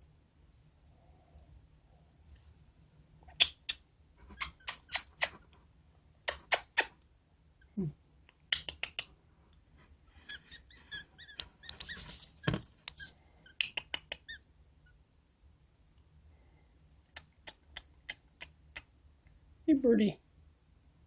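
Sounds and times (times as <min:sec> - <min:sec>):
soft bird chirps: 0:10.1 - 0:14.4.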